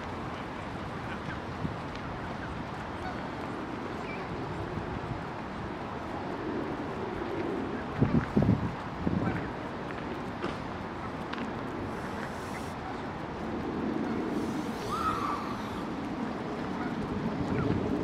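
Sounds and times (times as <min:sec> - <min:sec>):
low outdoor rumble: 0:00.0 - 0:18.0
bird call: 0:14.7 - 0:15.8.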